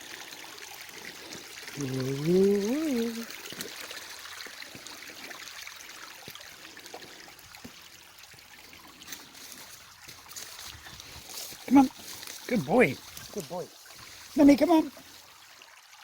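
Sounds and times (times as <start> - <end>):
creek water trickling: 0.0 - 16.0
person calling: 1.8 - 3.3.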